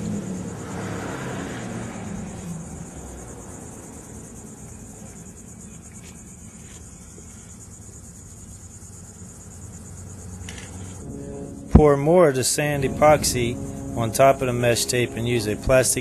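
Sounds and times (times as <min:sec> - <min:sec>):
insects chirping: 0:00.0 - 0:16.0
low rumble: 0:11.0 - 0:15.8.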